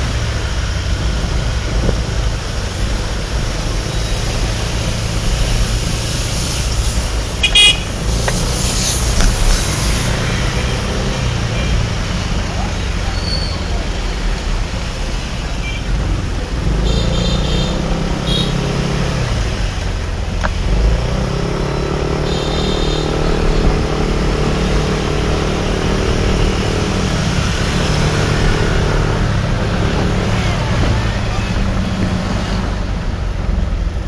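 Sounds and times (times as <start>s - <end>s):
motorbike engine running: 0.0s - 20.2s
wind and road noise: 0.0s - 34.0s.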